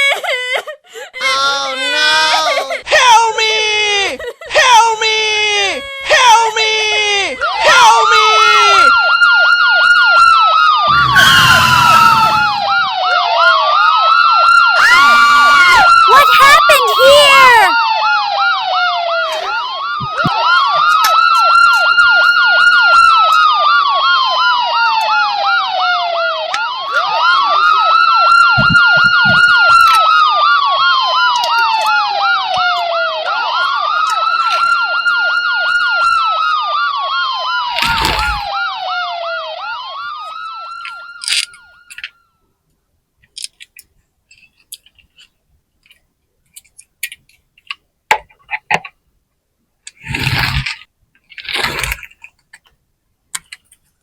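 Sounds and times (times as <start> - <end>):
toy ambulance siren wailing: 7.4 - 42.4.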